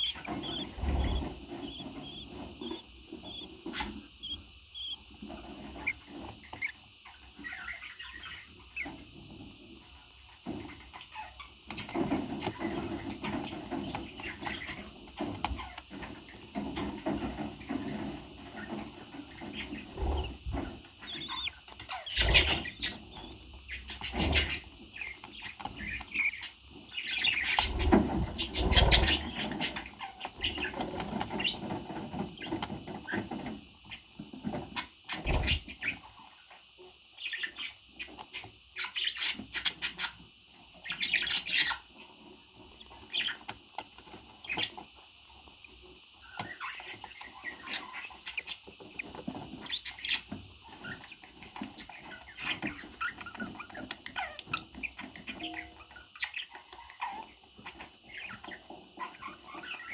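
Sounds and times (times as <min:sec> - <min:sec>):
parrot chirping and calling: 0:00.0 - 0:05.1, 0:20.0 - 0:30.8.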